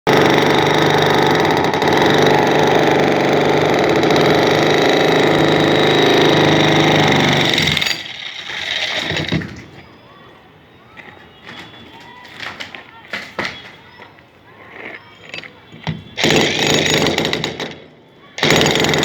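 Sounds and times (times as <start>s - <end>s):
concrete breaker hammering: 0.1s - 9.7s, 15.8s - 17.8s, 18.4s - 19.0s.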